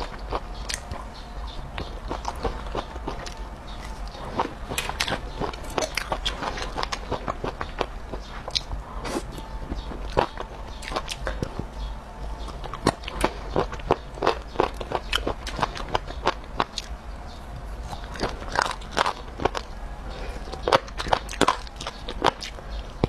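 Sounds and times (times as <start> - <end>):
biting and chewing food: 0.0 - 23.0.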